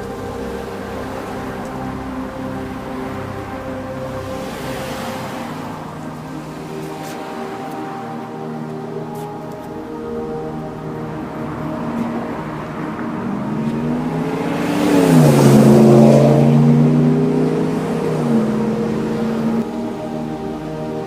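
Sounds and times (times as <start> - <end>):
background music: 0.0 - 21.0
motor vehicle passing by: 11.6 - 19.7.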